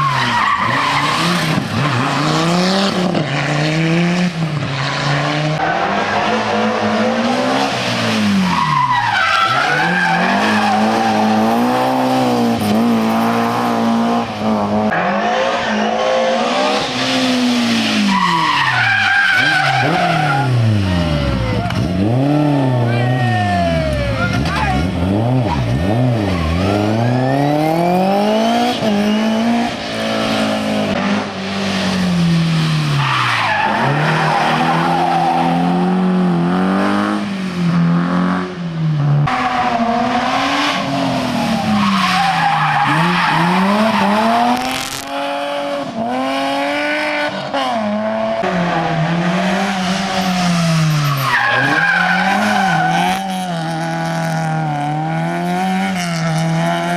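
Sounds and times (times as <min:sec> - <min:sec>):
rally car engine revving: 0:00.0 - 0:56.9
tyre squeal: 0:08.5 - 0:11.5, 0:18.1 - 0:20.6, 0:50.1 - 0:53.5.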